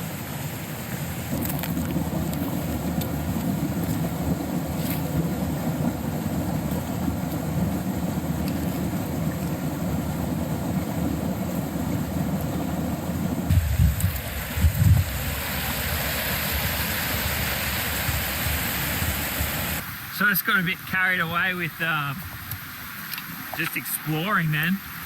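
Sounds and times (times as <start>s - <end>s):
creek water rushing over rapids: 0.0s - 25.0s.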